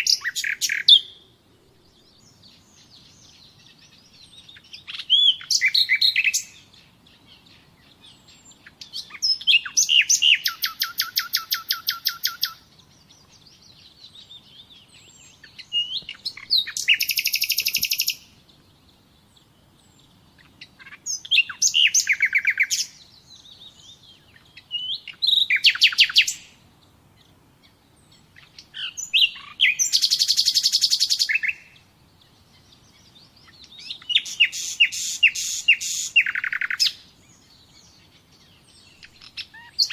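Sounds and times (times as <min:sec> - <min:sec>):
songbird trilling: 0:00.0 - 0:01.3, 0:01.9 - 0:26.6, 0:27.2 - 0:39.9.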